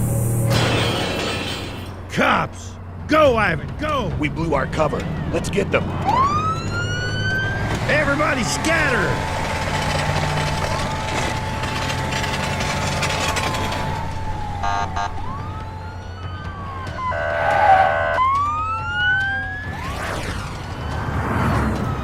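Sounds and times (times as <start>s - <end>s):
police siren wailing: 3.2s - 22.0s
short siren blasts: 9.8s - 22.0s.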